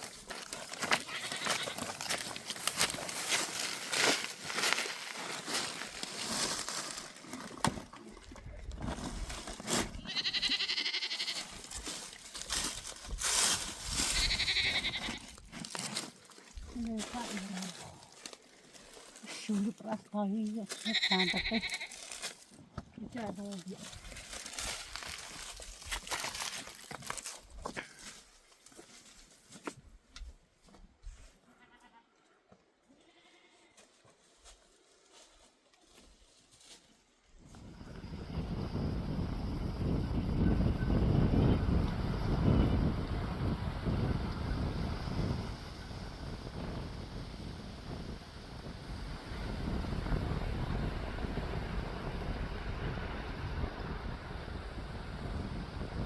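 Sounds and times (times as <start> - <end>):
goat bleating: 1.0 - 2.0, 10.0 - 11.6, 14.1 - 15.4, 20.8 - 22.0, 31.5 - 32.1, 32.9 - 33.8.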